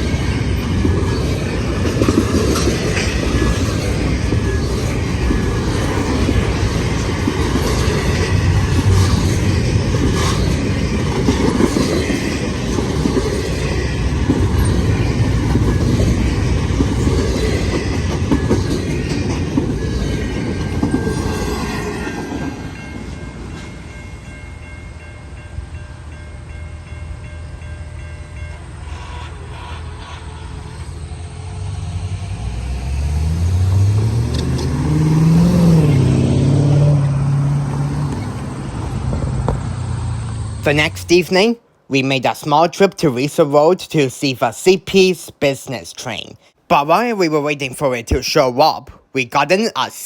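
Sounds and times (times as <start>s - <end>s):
wheels clicking over rail joints: 0.0s - 24.4s, 32.4s - 41.9s
freight train rumbling past: 0.0s - 47.6s.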